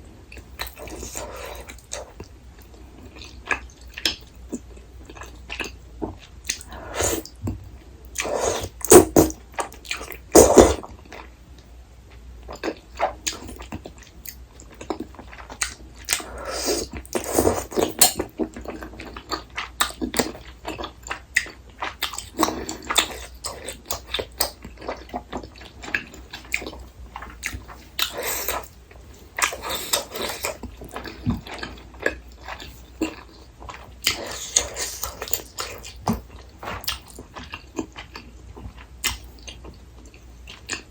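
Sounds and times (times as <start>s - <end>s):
person chewing and biting: 29.4s - 38.3s.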